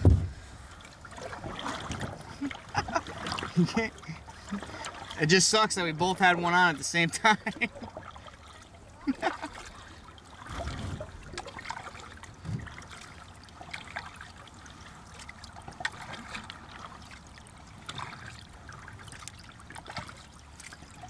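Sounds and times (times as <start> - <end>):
soft low knocks: 0.0 - 0.5
water splashing from paddle strokes: 0.0 - 21.0.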